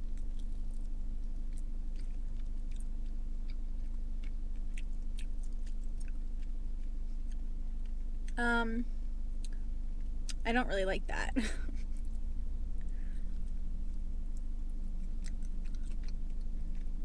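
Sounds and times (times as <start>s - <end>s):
steady low hum: 0.0s - 17.0s
close-up wet chewing: 0.1s - 8.4s, 12.8s - 17.0s.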